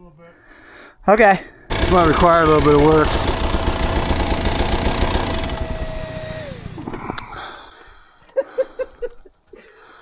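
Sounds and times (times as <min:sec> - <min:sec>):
dirt bike engine idling: 0:01.7 - 0:07.6.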